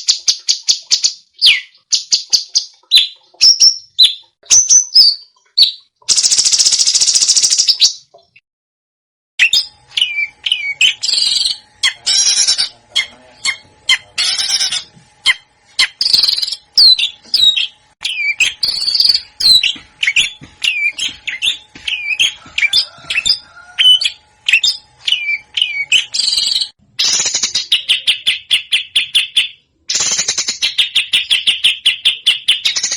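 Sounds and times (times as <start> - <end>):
harsh raspy bird calls: 9.5 - 32.9.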